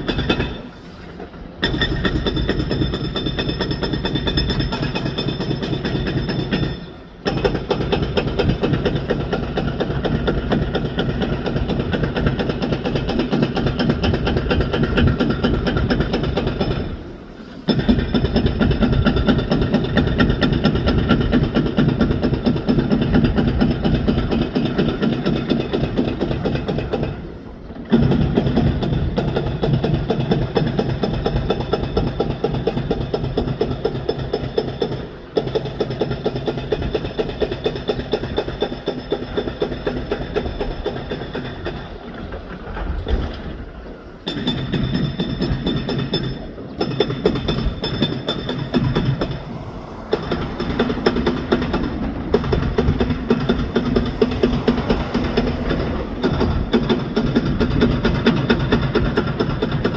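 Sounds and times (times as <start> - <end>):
demolition machinery clattering: 0.0 - 59.9.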